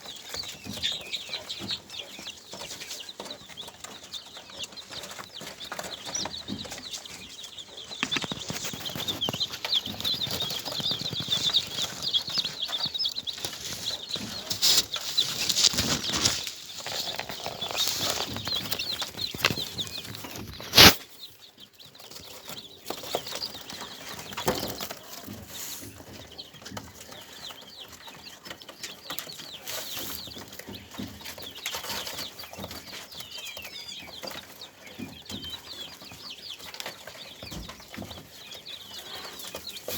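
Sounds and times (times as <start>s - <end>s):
birds chirping rapidly: 0.0s - 39.9s
wings fluttering: 7.9s - 21.0s.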